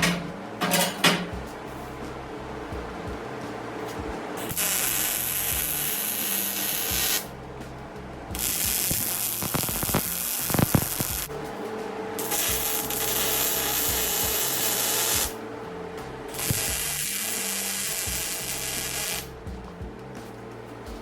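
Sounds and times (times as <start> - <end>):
background music: 0.0 - 21.0
hissing noise bursts: 8.3 - 11.3.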